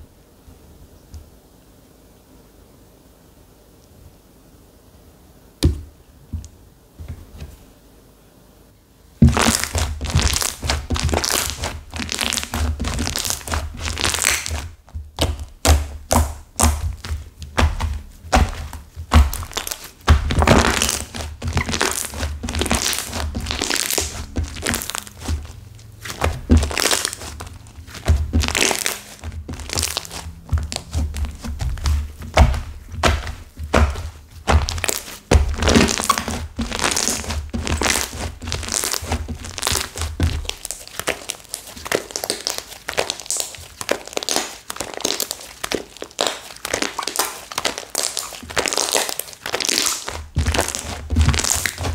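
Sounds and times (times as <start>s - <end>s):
dull thuds: 9.2s - 41.0s, 50.2s - 51.9s
hard slime crackling and crunching: 9.2s - 51.9s.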